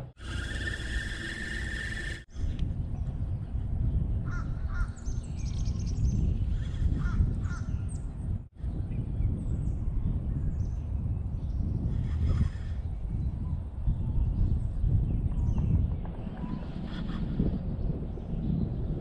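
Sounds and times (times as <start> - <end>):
steady low rumble: 13.2 - 19.0.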